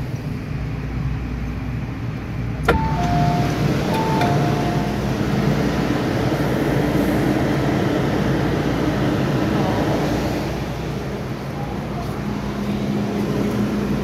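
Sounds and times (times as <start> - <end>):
train running gear drone: 0.0 - 14.0
train wheels rumbling on rails: 0.0 - 14.0.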